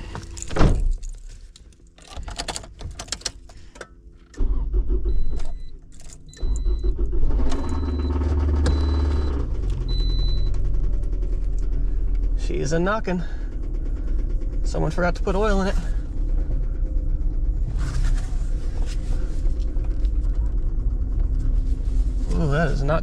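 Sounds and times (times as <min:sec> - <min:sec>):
engine starting with rod knock: 0:06.3 - 0:10.7.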